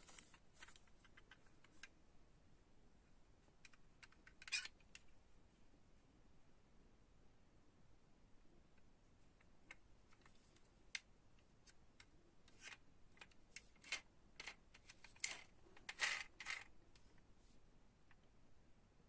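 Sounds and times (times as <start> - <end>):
toy cars and packaging clicking: 9.6 - 17.1.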